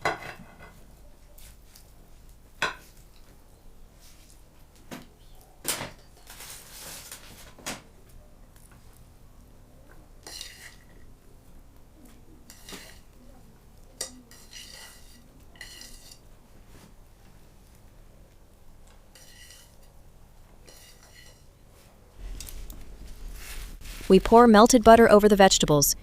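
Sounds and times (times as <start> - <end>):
dishes and cutlery clinking: 0.0 - 0.8, 10.2 - 11.1, 12.5 - 13.1, 14.0 - 16.3, 19.1 - 20.0, 20.6 - 21.6.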